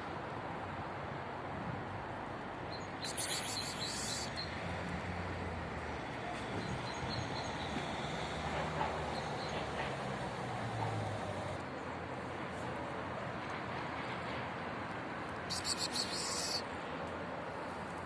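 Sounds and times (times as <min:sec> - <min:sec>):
high chirping: 0:03.0 - 0:04.4, 0:15.5 - 0:16.6.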